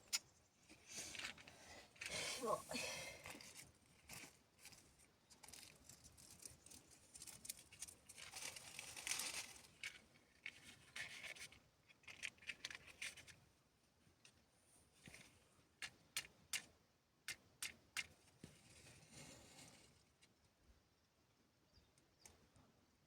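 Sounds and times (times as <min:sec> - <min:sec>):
faint scratching and rubbing: 0:18.3 - 0:20.3.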